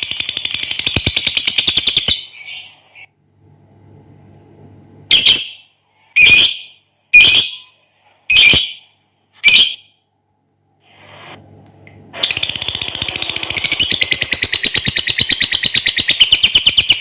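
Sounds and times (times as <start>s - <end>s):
lovebird harsh calls: 5.1s - 7.7s
lovebird chattering trill: 12.2s - 17.0s.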